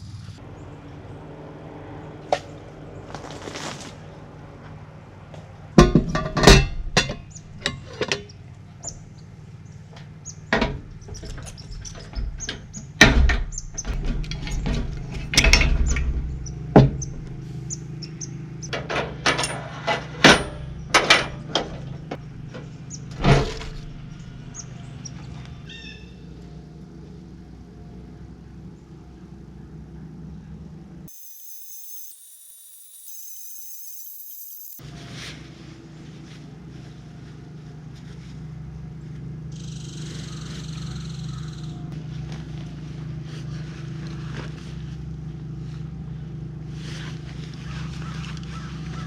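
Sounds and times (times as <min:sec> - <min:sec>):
sharp knocks and clunks: 0:05.8 - 0:08.2, 0:10.5 - 0:17.4, 0:18.7 - 0:24.1.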